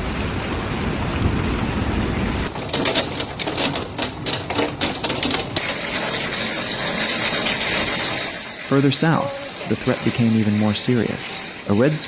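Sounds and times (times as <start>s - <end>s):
wind-driven rain and hail hiss: 0.0s - 2.5s, 5.5s - 12.0s
hailstones striking hard surface: 1.2s - 12.0s.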